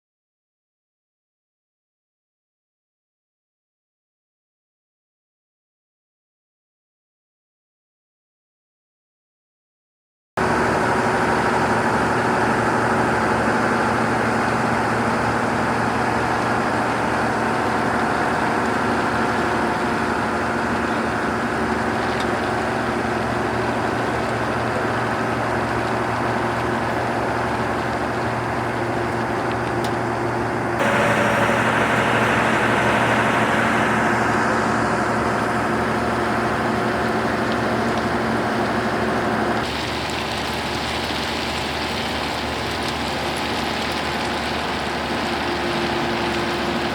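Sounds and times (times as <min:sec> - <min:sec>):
heavy machinery engines running: 0:10.4 - 0:46.9.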